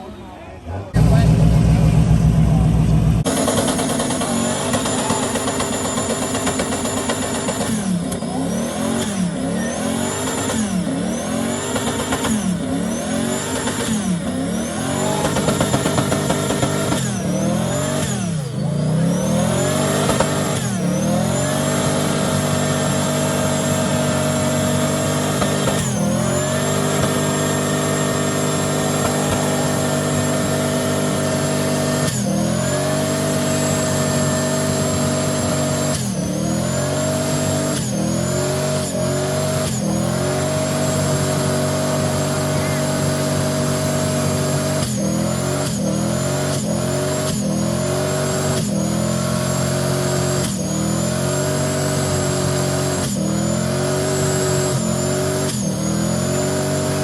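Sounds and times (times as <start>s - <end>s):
truck engine revving: 0.0s - 57.0s
high whine: 1.0s - 35.9s.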